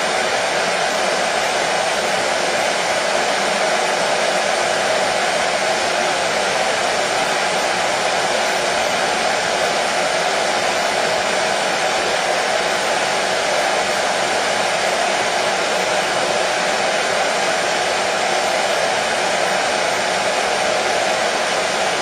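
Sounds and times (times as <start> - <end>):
hair dryer blowing: 0.0 - 22.0.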